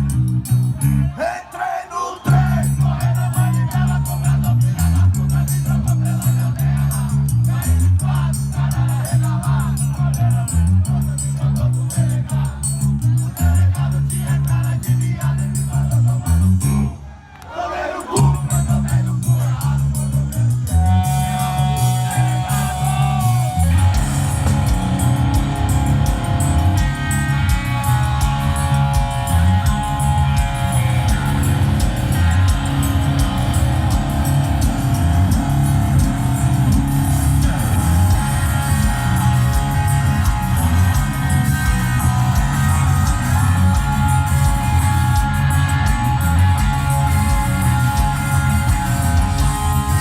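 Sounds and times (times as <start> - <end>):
bass riff: 0.0 - 1.2, 2.3 - 17.0, 18.2 - 50.0
distorted electric guitar: 0.0 - 1.2, 2.3 - 17.0, 18.2 - 50.0
drums: 0.0 - 1.3, 2.3 - 16.9, 18.0 - 50.0
lead guitar bending note: 21.0 - 50.0.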